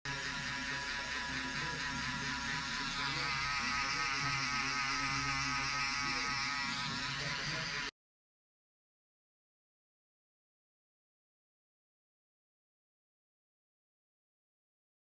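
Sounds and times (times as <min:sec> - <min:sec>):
electric shaver buzzing: 0:00.1 - 0:07.9.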